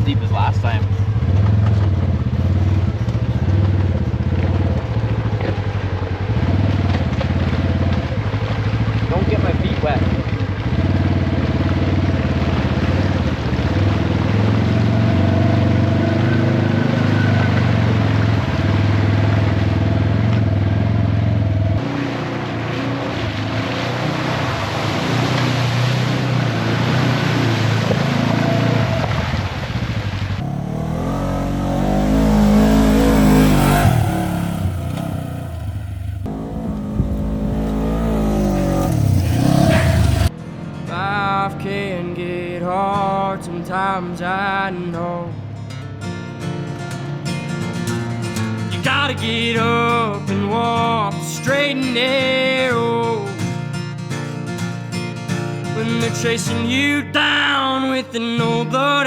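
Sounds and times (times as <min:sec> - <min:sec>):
off-road vehicle engine revving: 0:00.0 - 0:40.6.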